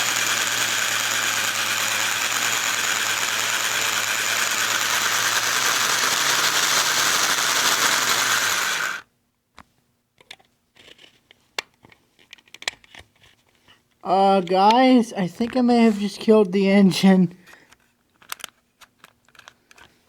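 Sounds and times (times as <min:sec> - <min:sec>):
model train motor whirring: 0:00.0 - 0:09.1.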